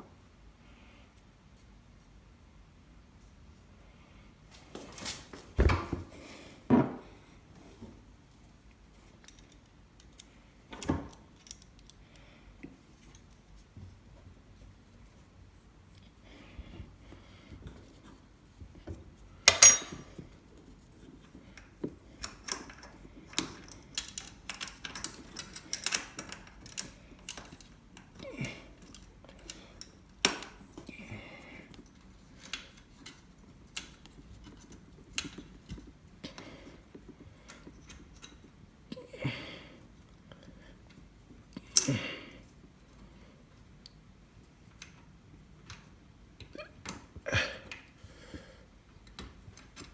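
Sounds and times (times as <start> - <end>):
ringing metallic clank: 19.5 - 20.2
metal tools clinking: 19.5 - 20.3.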